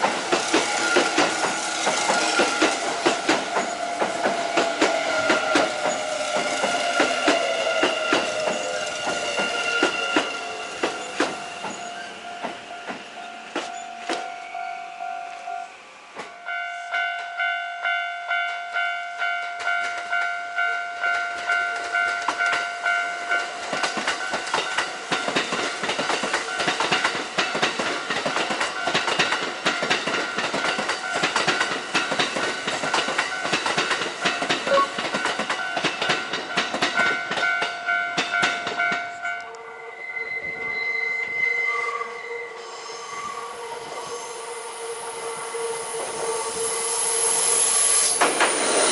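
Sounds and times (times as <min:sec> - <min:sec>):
train wheels clattering over rails: 0:00.0 - 0:14.3, 0:23.3 - 0:39.2, 0:48.0 - 0:48.9
level-crossing alarm ringing: 0:00.5 - 0:25.5.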